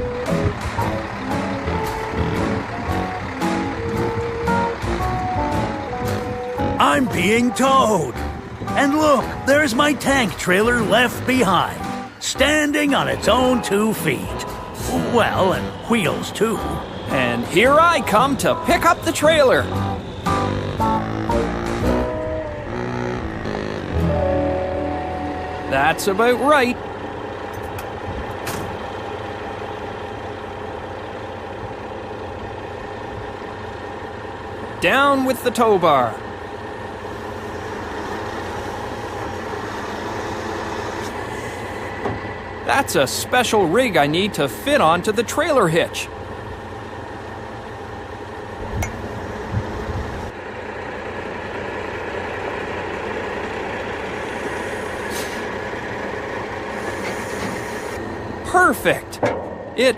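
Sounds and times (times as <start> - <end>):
diesel engine idling: 0.0 - 59.9
low thumps: 59.2 - 59.9.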